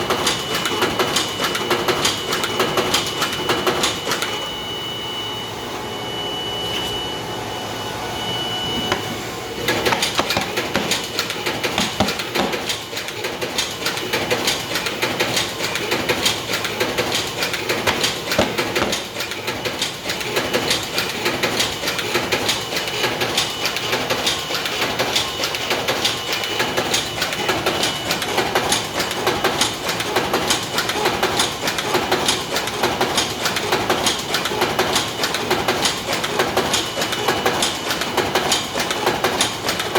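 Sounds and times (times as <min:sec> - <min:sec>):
machine humming with high whine: 0:00.0 - 0:29.9.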